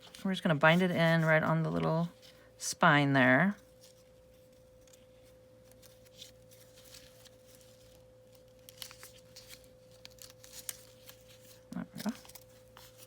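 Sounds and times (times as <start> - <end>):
paper rustling and clicking: 4.8 - 13.0.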